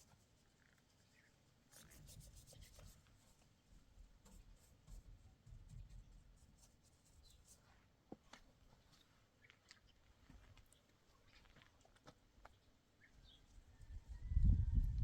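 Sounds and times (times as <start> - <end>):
faint scratching and rubbing: 0.0 - 7.9.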